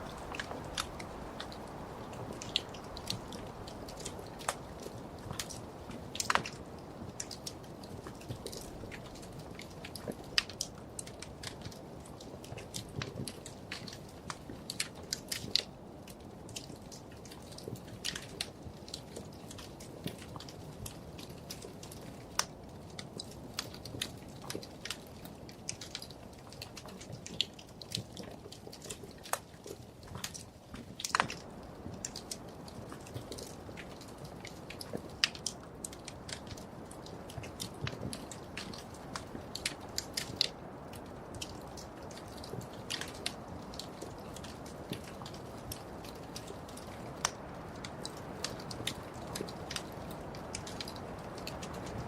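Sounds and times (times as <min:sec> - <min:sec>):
low hiss of burning logs: 0:00.0 - 0:52.0
wood fire crackling and popping: 0:00.0 - 0:52.0.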